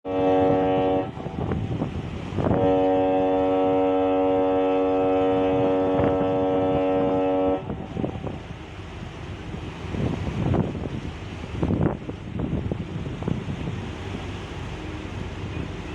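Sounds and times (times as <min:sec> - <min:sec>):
ship's horn blasts: 0:00.0 - 0:08.6
wind noise on microphone: 0:00.0 - 0:15.9.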